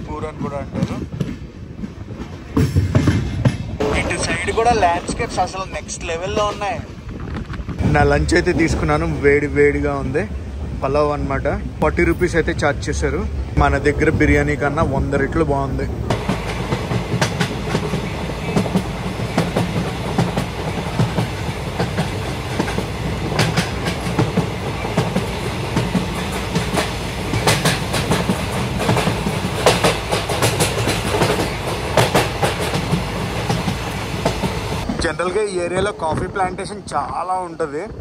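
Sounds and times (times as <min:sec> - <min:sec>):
train coaches rumbling: 0:00.0 - 0:38.0
wheels clattering over rail joints: 0:06.2 - 0:36.4.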